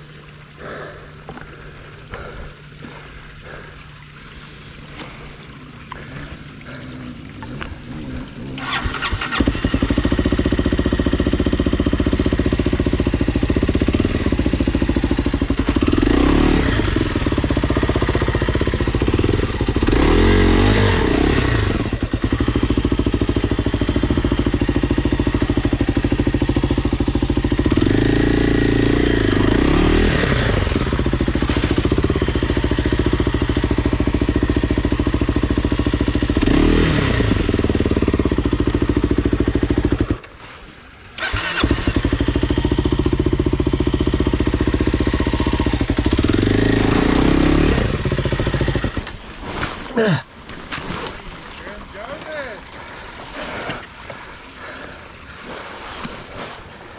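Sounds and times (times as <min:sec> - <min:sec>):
dirt bike engine revving: 0:06.0 - 0:50.8.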